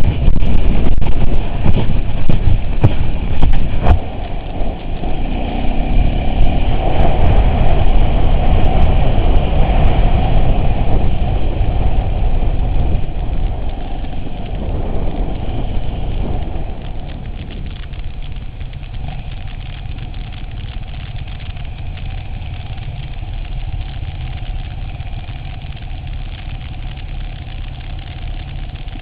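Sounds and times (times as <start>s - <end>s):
vehicle engine low rumble: 0.0s - 29.0s.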